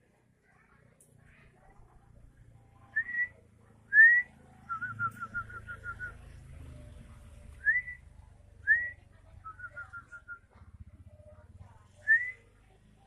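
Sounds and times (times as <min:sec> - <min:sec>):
songbird whistling and singing: 0:02.9 - 0:06.2, 0:07.6 - 0:10.5, 0:12.0 - 0:12.4.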